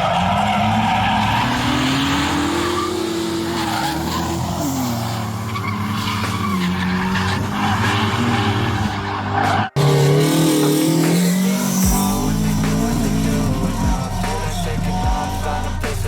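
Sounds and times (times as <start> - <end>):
race car engine howling: 0.0 - 16.0
music with deep bass line: 10.0 - 16.0.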